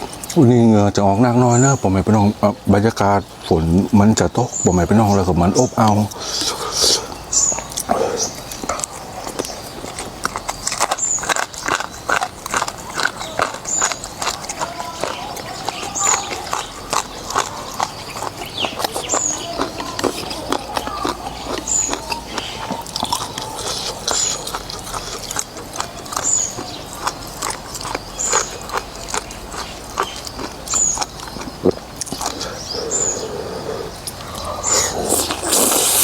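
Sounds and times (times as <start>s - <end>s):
noodles being slurped and chewed: 4.9s - 36.0s.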